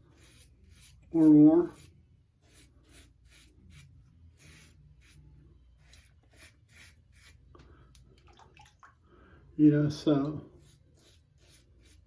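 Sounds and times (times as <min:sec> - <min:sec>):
razor scraping stubble: 0:00.0 - 0:05.2, 0:05.8 - 0:07.4, 0:10.6 - 0:12.0.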